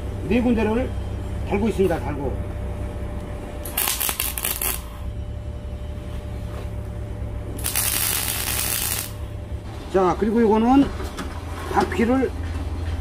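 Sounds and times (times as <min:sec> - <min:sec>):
welding crackle: 0:03.6 - 0:04.9, 0:07.6 - 0:09.2.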